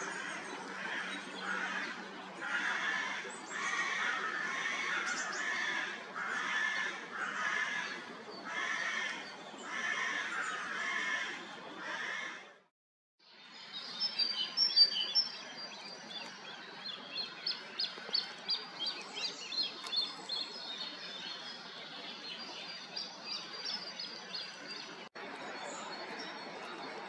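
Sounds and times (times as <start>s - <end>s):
outdoor background noise: 0.0s - 27.0s
small birds chirping: 13.3s - 26.7s.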